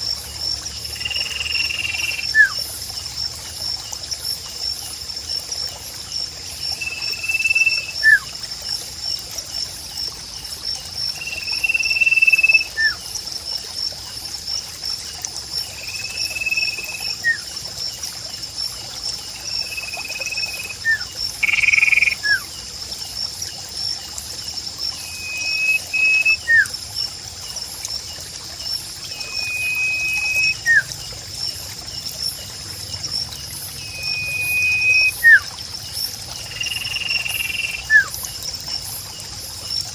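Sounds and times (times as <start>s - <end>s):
insect drone: 0.0s - 39.9s
water trickling: 0.0s - 39.9s
bird whistling call: 1.2s - 2.6s, 25.0s - 26.7s, 29.2s - 30.9s, 33.9s - 35.5s, 36.6s - 38.1s.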